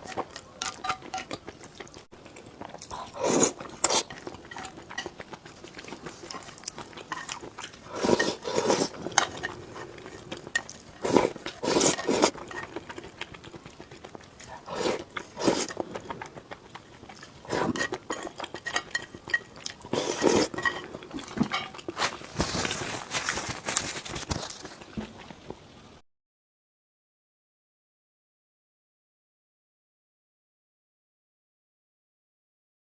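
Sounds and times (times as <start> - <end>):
person biting and chewing food: 0.0 - 25.3.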